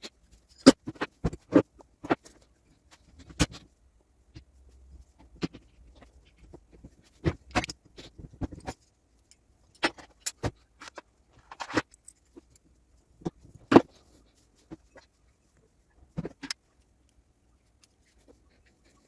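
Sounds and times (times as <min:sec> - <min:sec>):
metal parts clinking and knocking: 0:05.4 - 0:15.1.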